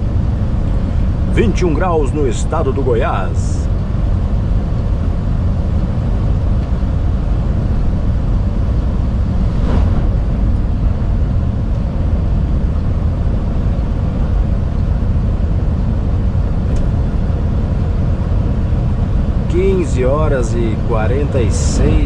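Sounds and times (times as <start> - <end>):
truck engine droning: 0.0 - 22.0.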